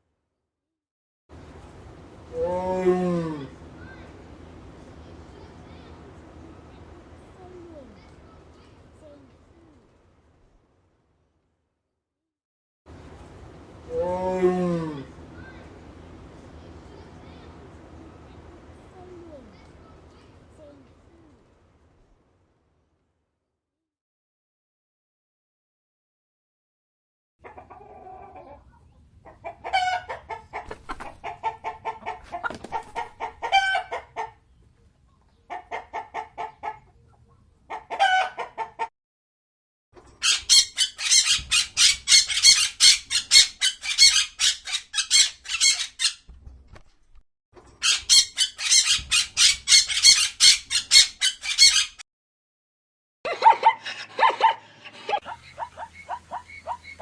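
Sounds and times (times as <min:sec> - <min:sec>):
chickens clucking and calling: 0:27.4 - 0:34.5, 0:35.3 - 0:37.0, 0:37.7 - 0:38.9, 0:53.3 - 0:57.0.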